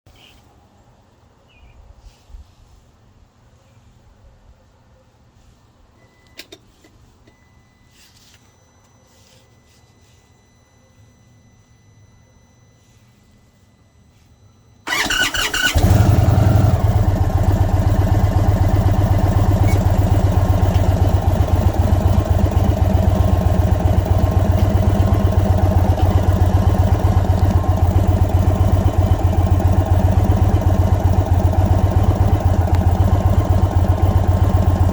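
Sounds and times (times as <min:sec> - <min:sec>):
motorcycle engine revving and idling: 0:14.9 - 0:34.9
motorcycle starter cranking: 0:14.9 - 0:34.9.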